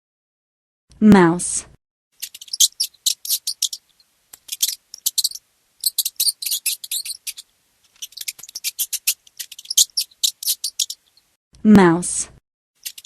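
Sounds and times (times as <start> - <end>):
mouse squeaking: 2.2 - 11.4, 12.8 - 13.0.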